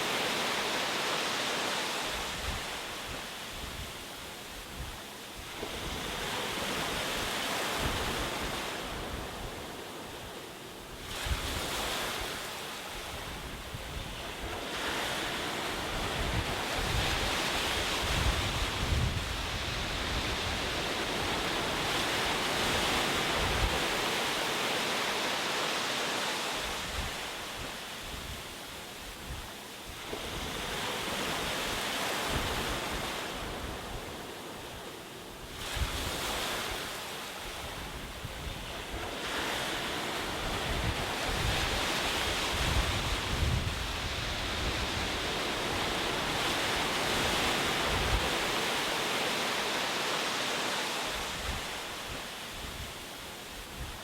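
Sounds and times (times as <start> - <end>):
ocean waves washing onto shore: 0.0 - 54.0
wind rumble on microphone: 2.1 - 10.2, 10.9 - 24.3, 26.6 - 48.8, 51.1 - 54.0.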